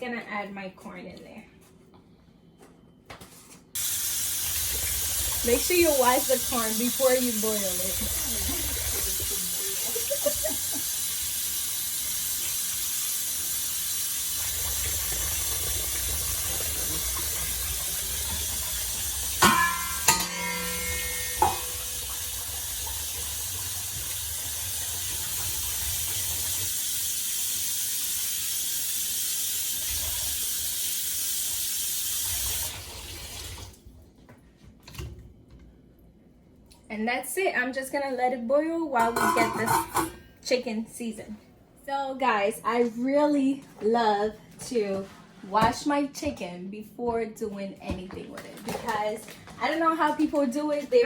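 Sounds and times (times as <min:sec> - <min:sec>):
tap water running into sink: 0:03.8 - 0:33.8.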